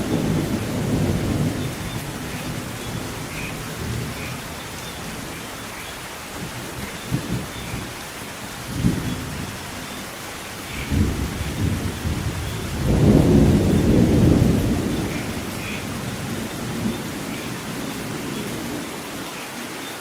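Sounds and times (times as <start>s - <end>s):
rolling thunder rumble: 0.0s - 5.4s, 10.7s - 18.8s
steady rain: 0.0s - 20.0s
thunder clap: 10.8s - 17.5s.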